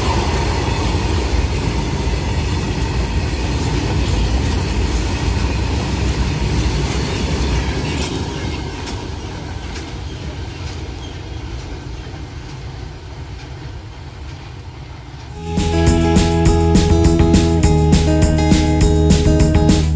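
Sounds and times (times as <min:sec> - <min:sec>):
freight train rumbling past: 0:00.0 - 0:13.9.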